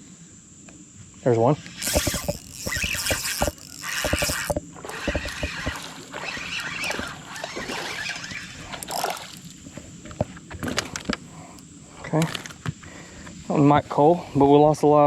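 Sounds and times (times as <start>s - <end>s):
fish splashing in water: 1.8s - 9.7s
knocks and rattles in boat: 1.8s - 11.2s.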